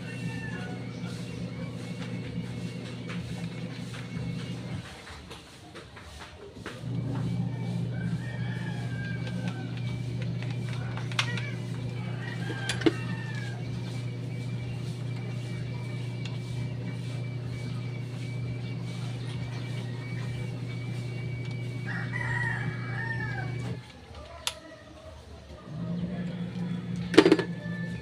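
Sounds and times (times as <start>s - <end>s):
rooster crowing: 0.0s - 1.8s, 7.0s - 14.4s, 20.0s - 28.0s
machine hum: 0.0s - 5.2s, 6.5s - 24.4s, 25.0s - 28.0s.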